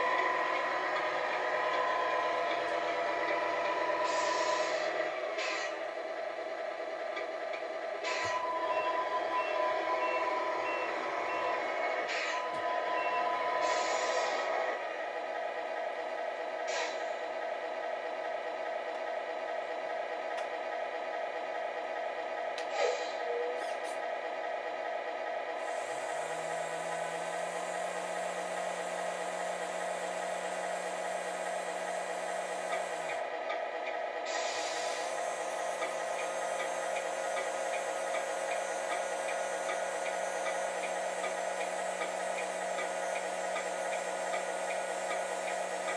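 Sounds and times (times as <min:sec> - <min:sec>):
simulated diesel truck engine: 0:00.0 - 0:45.9
toy truck electric whirring: 0:25.6 - 0:33.3, 0:34.3 - 0:45.9.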